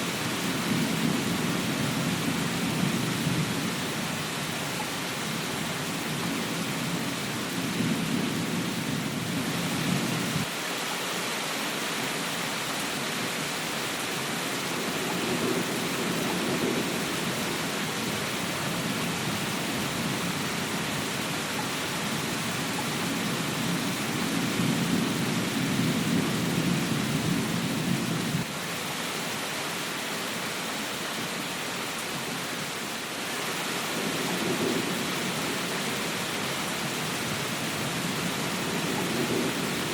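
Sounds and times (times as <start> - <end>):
steady rain hiss: 0.0 - 39.9
thunder rumbling: 14.6 - 28.5, 33.9 - 39.9.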